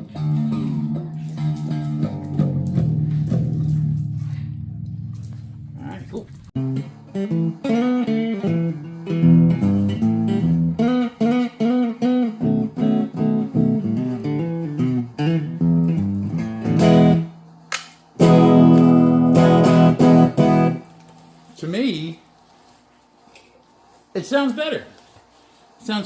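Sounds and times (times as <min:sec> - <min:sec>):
electric guitar single-note line: 0:00.0 - 0:05.9, 0:06.6 - 0:17.3, 0:18.2 - 0:20.9
electric guitar ringing chord: 0:18.2 - 0:20.9.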